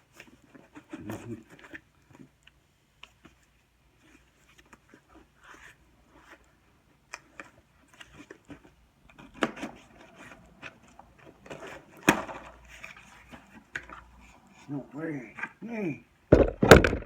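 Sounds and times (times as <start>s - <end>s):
cardboard and packing rustling: 3.1s - 14.7s
sharp knocks: 16.3s - 17.0s.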